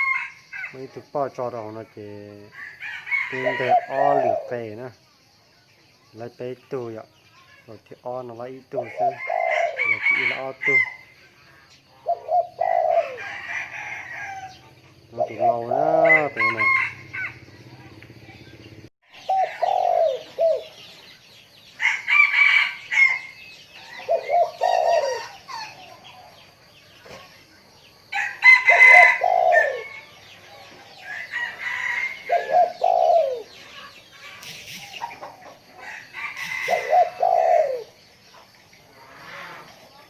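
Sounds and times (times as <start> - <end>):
chicken calls: 0.0 - 5.0, 6.7 - 40.0
dove cooing: 3.1 - 4.9, 8.7 - 11.0, 11.9 - 17.9, 19.1 - 20.9, 23.0 - 26.4, 28.2 - 38.0.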